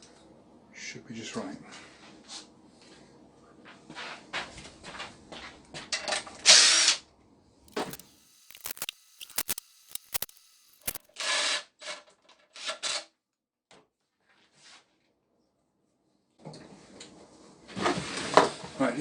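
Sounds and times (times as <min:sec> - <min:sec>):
ratchet wrench clicking: 0:07.7 - 0:11.0
ratchet wrench scraping: 0:07.7 - 0:11.1.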